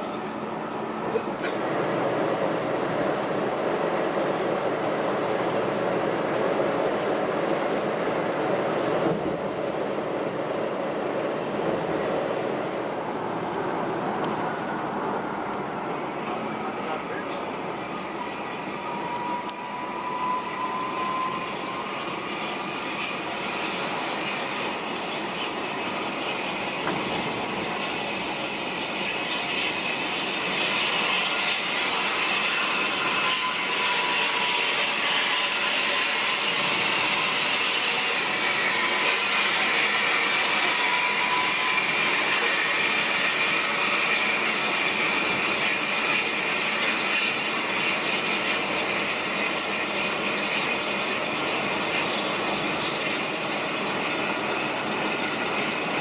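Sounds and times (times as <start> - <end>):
bus engine and road noise: 0.0 - 20.0.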